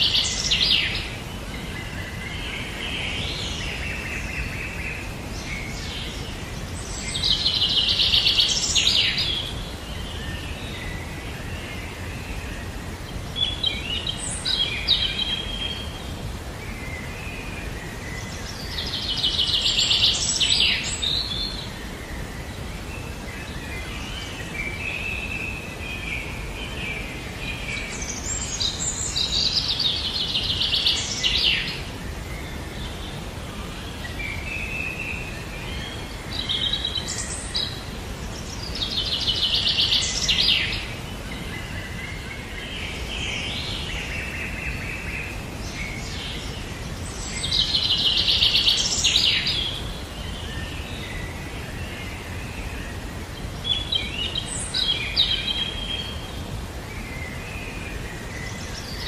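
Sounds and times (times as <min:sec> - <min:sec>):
background hiss: 0:00.0 - 0:59.0
soft bird calls: 0:00.0 - 0:59.0
songbird singing with trill: 0:00.0 - 0:59.0.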